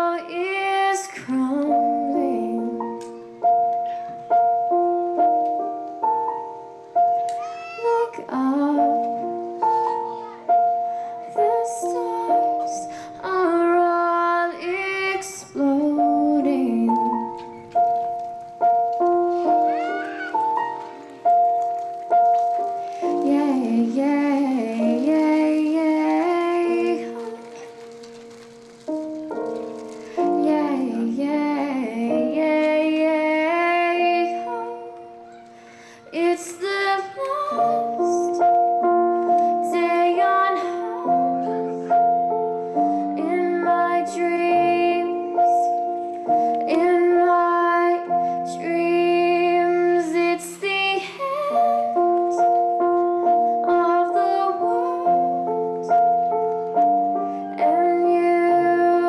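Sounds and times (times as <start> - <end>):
woman singing: 0.0 - 3.2, 7.8 - 10.1, 10.7 - 17.7, 22.8 - 27.8, 30.1 - 35.2, 35.9 - 42.2, 42.8 - 56.3, 57.3 - 59.0
piano chords: 0.0 - 59.0.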